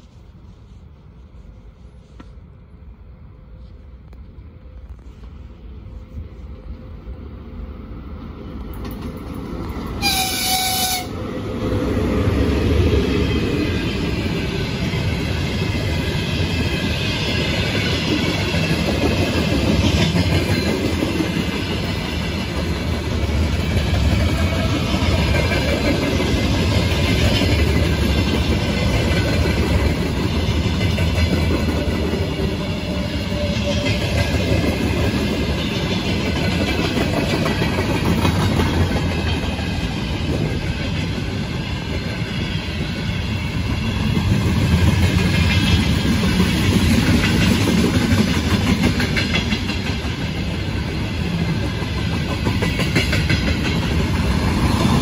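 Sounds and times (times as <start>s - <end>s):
locomotive horn blast: 10.0s - 11.1s
freight train wheels clattering: 12.8s - 55.0s.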